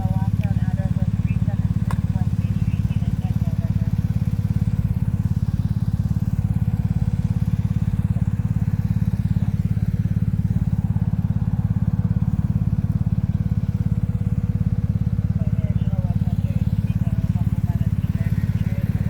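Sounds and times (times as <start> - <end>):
engine droning: 0.0 - 19.0.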